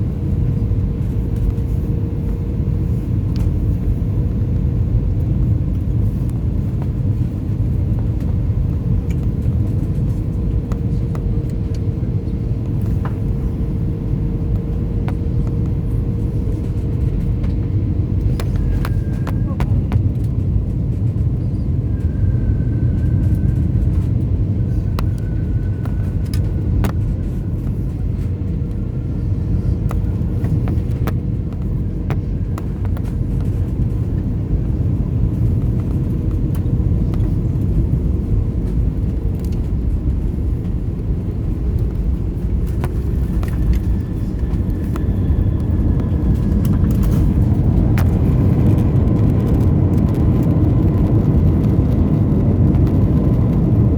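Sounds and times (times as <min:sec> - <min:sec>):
aircraft cabin engine rumble: 0:00.0 - 0:53.9.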